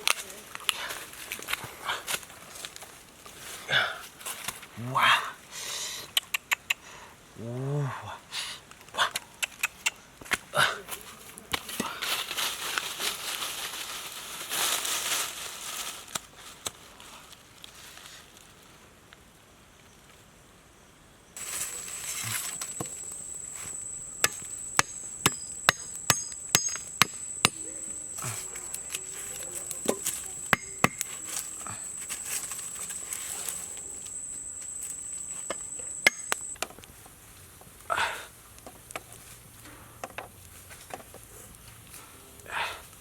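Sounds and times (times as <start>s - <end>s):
high insect drone: 21.4s - 36.6s
blade chopping on hard surface: 22.5s - 28.4s, 29.7s - 31.2s, 35.5s - 36.5s.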